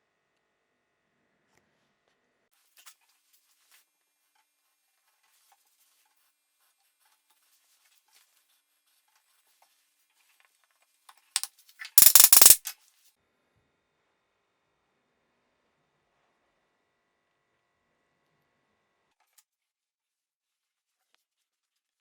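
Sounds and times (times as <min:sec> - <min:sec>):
small hard objects clattering: 0:11.4 - 0:12.7.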